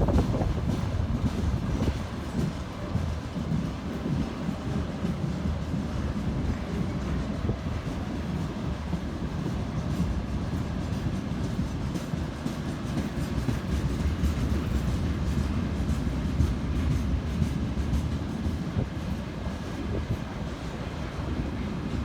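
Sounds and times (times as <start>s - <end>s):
train cars rumbling past: 0.0s - 22.0s.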